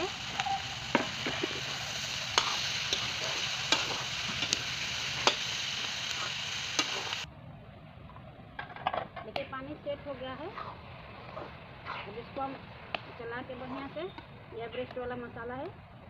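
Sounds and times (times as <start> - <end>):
vegetables sizzling in a wok: 0.0 - 7.3, 9.8 - 14.6
metal spoon scraping a pan: 0.3 - 4.6.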